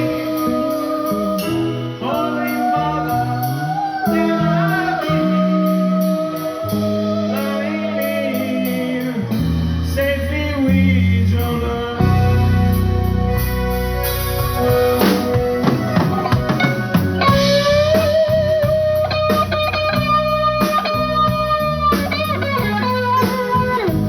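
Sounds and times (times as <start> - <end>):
person singing: 0.0 - 13.6
bass guitar: 0.0 - 24.0
electric guitar: 0.0 - 24.0
drum beat: 14.6 - 24.0.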